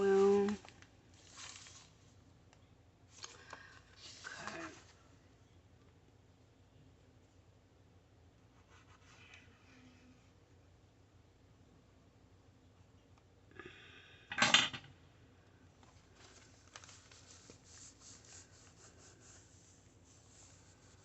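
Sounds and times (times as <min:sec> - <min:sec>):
paper rubbing and rustling: 0:00.0 - 0:02.1, 0:03.1 - 0:05.0, 0:15.9 - 0:21.0.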